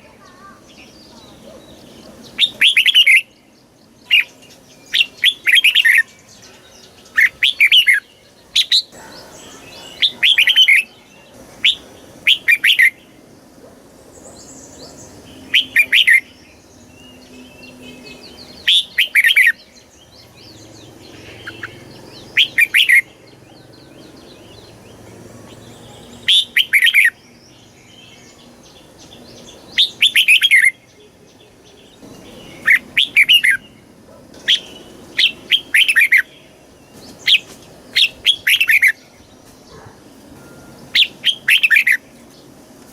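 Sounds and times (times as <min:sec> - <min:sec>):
bulbul singing: 0:00.0 - 0:42.9.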